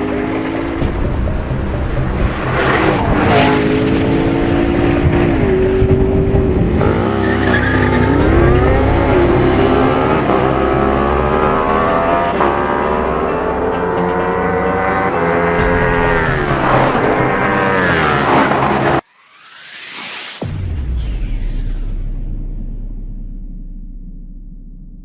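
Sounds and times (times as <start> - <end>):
car engines revving hard: 0.0 - 19.0
rush of noise: 15.4 - 22.9.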